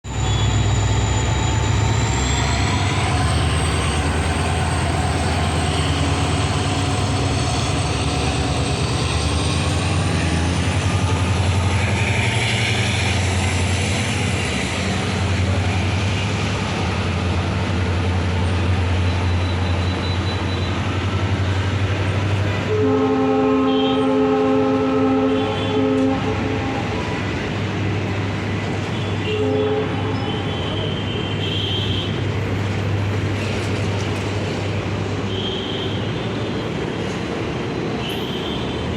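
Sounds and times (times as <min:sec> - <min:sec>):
train rumble: 0:00.0 - 0:38.9
train horn blast: 0:22.6 - 0:27.1, 0:28.9 - 0:32.2.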